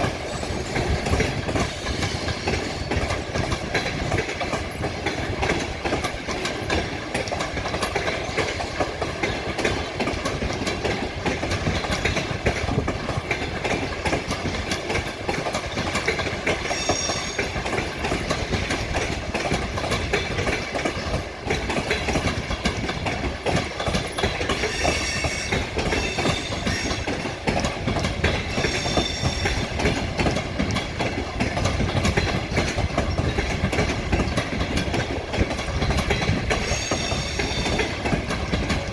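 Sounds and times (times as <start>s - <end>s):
train wheels clacking over rail joints: 0.0s - 38.9s
wheels squealing: 24.6s - 27.4s.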